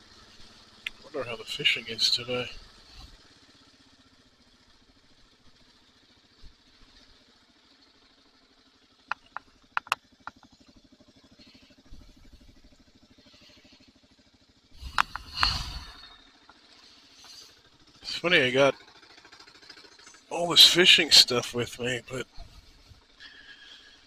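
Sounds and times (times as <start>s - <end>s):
motorcycle engine running: 0.0s - 24.0s
sharp clicks: 9.1s - 10.4s, 14.8s - 15.6s.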